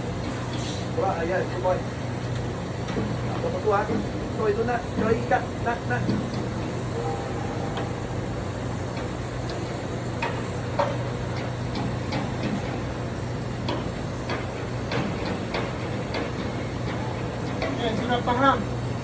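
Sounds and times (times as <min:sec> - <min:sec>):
low machine hum: 0:04.9 - 0:10.2.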